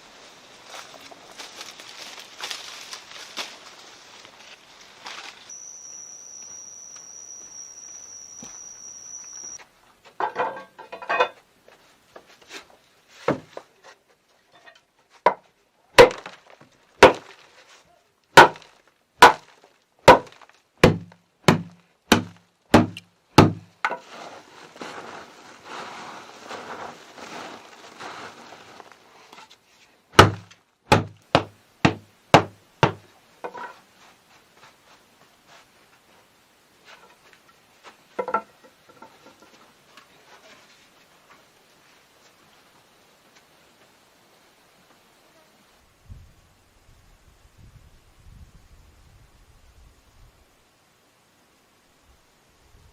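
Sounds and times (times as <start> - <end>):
rustling and scraping: 0.0 - 5.5, 8.4 - 15.5, 16.1 - 20.6, 23.6 - 30.6, 33.0 - 42.6
high-pitched whine: 5.5 - 9.6
axe blows chopping wood: 16.0 - 16.4, 17.0 - 17.3, 18.4 - 19.5, 20.1 - 23.7, 30.2 - 33.0.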